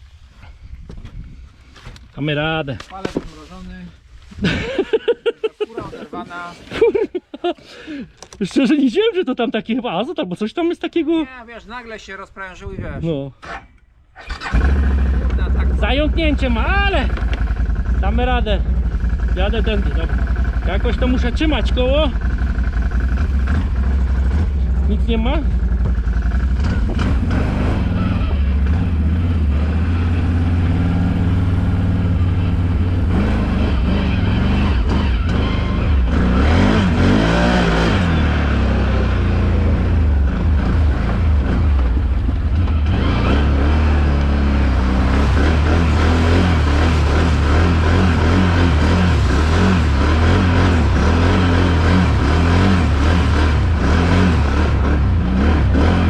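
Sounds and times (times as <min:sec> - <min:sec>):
quad bike engine running: 0:14.2 - 0:56.0.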